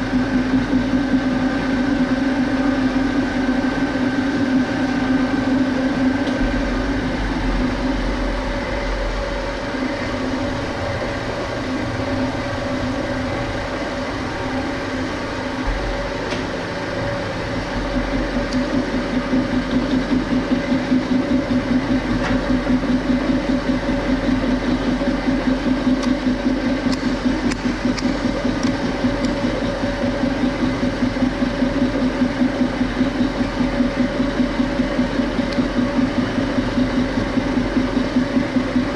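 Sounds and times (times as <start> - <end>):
machine tool droning: 0.0 - 38.9.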